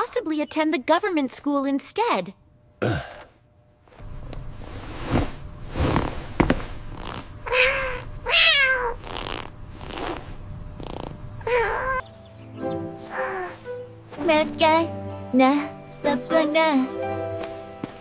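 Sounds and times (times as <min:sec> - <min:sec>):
cat purring: 0:06.8 - 0:12.0
cat meowing: 0:07.4 - 0:09.0, 0:11.4 - 0:12.0.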